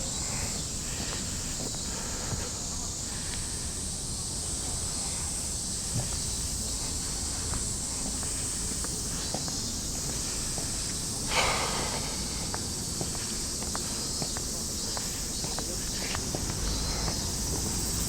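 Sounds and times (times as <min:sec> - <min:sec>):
high-pitched insect drone: 0:03.7 - 0:18.0
light footsteps: 0:06.0 - 0:17.6
short hissing burst: 0:11.3 - 0:12.7.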